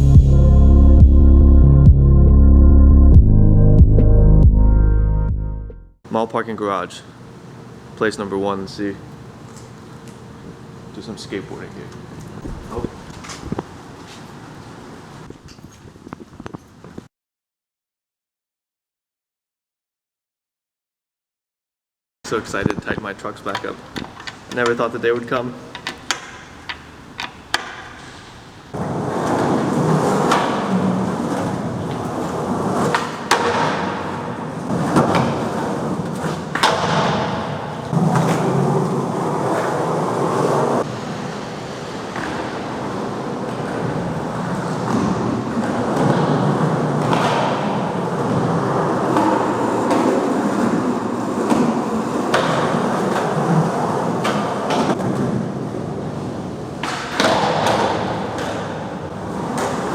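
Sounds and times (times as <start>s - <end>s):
skateboard wheels rolling on concrete: 9.2s - 17.1s, 22.5s - 59.9s
skateboard clacks and knocks: 23.4s - 59.9s.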